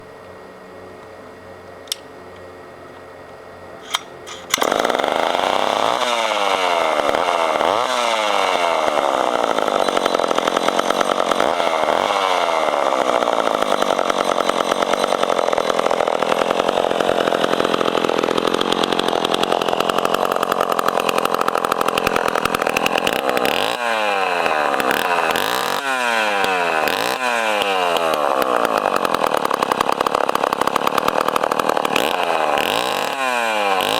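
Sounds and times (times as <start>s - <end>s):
sharp clicks: 1.8s - 2.1s, 3.8s - 5.1s
chainsaw engine revving: 3.9s - 33.9s.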